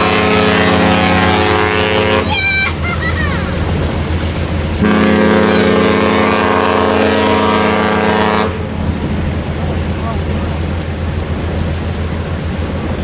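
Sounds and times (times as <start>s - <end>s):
ship horn long blast: 0.0s - 2.3s, 3.5s - 11.3s.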